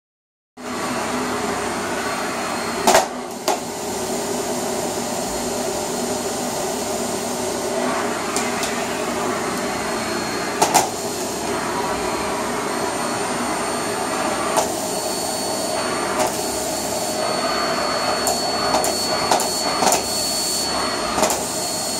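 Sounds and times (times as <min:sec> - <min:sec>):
vacuum cleaner running: 0:00.6 - 0:21.9.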